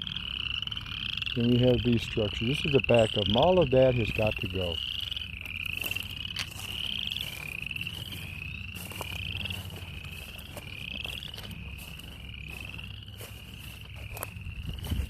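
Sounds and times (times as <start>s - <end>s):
frogs trilling: 0.0s - 15.0s.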